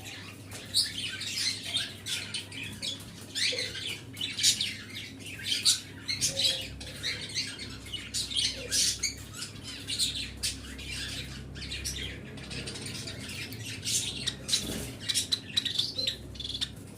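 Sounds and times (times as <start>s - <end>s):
pet birds chirping and squawking: 0.0s - 16.9s.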